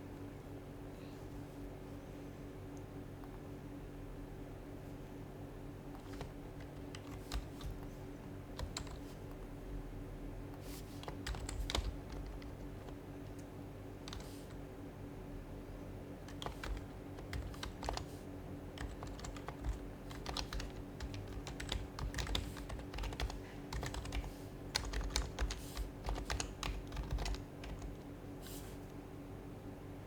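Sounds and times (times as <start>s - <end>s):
faint steady hum: 0.0s - 30.0s
typing on a keyboard: 6.0s - 7.9s, 8.6s - 9.0s, 11.0s - 14.3s, 16.2s - 18.1s, 18.8s - 28.0s.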